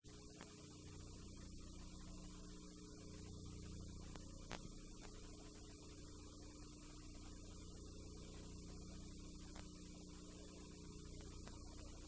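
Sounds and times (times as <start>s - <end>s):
faint electrical hum: 0.0s - 12.0s
light hiss: 0.1s - 12.0s
click: 11.2s - 11.6s.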